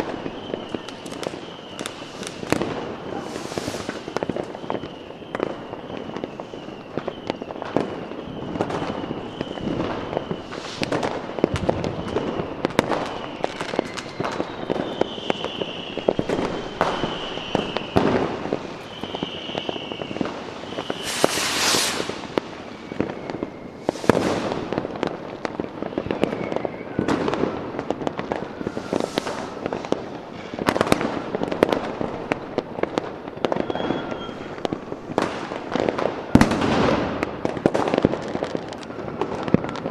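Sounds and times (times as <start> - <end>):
firework whistle falling in pitch: 0.0 - 24.8, 25.7 - 31.0, 33.4 - 34.8
loud firework hiss: 0.0 - 33.0
fireworks bangs and crackling: 0.0 - 39.9.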